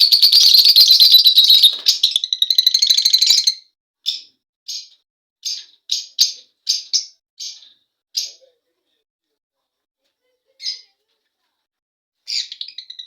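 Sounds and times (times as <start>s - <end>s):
lovebirds chattering and chirping: 0.0s - 3.6s.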